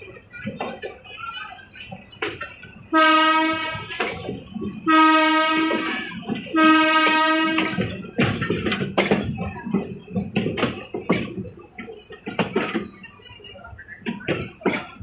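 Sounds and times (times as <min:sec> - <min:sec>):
train horn blasts: 0:02.9 - 0:03.9, 0:04.8 - 0:07.8
rattling noise: 0:03.6 - 0:15.0.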